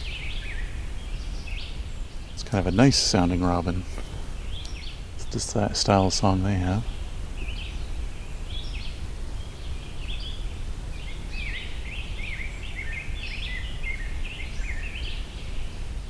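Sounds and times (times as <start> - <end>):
steady low rumble: 0.0 - 12.0
robin singing: 0.0 - 16.0.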